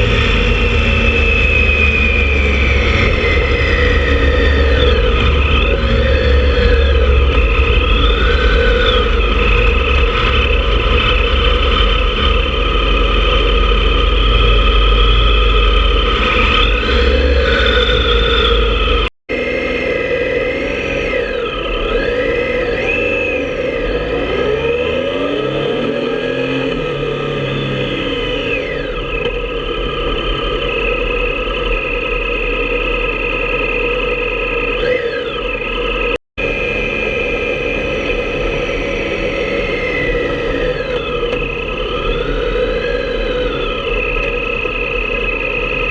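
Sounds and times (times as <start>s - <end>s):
heavy low rumble: 0.0s - 19.1s
motorcycle engine cruising: 0.0s - 45.9s.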